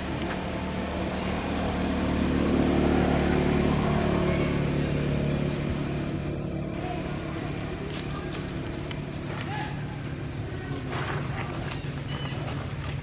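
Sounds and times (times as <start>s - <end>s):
vehicle engine passing by: 0.0s - 13.0s.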